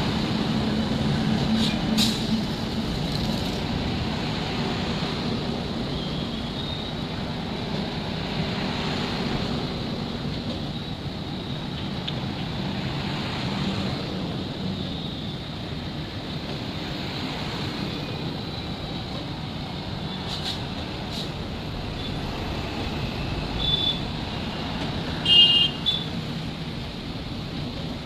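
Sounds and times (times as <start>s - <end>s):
train rumbling: 0.0s - 28.0s.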